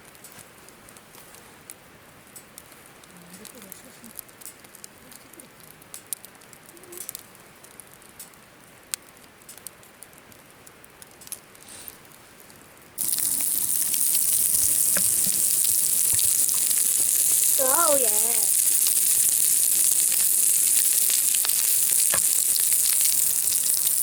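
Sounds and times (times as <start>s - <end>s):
food sizzling in hot oil: 13.0s - 24.0s.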